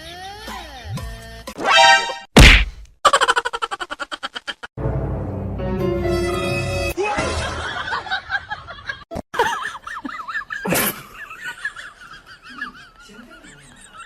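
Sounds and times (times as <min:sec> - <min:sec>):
snickering laughter: 0:03.1 - 0:04.7, 0:07.1 - 0:14.0.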